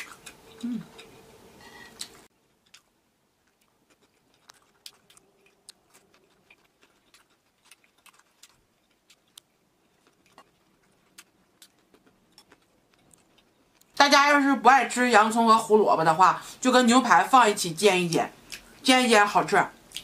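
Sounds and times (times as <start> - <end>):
faint chewing of steak: 0.0 - 14.0.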